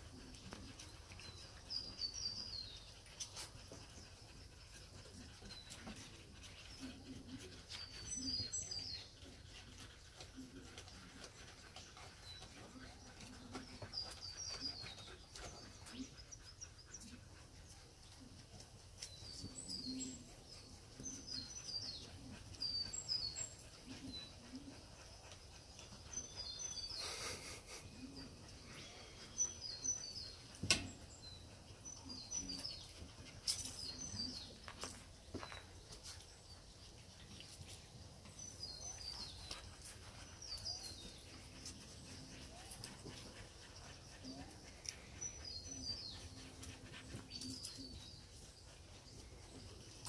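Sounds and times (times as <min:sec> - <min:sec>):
rustle: 0:00.0 - 0:50.0
puppies scuffling on wooden decking: 0:32.4 - 0:50.0.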